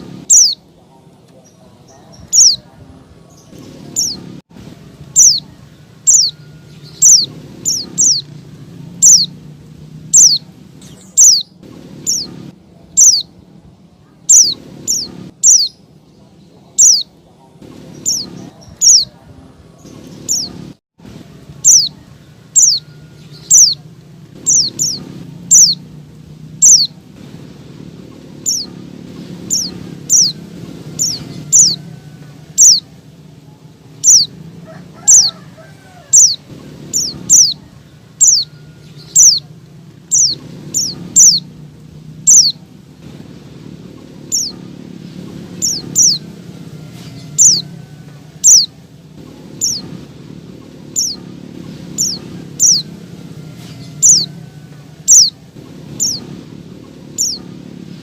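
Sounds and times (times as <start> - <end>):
bird calling sharp high notes: 0.0 - 0.7, 5.0 - 9.4, 21.3 - 25.9, 26.6 - 27.0, 28.4 - 33.0, 33.8 - 39.5, 40.1 - 41.6, 42.2 - 42.7, 45.4 - 50.0, 50.9 - 56.3.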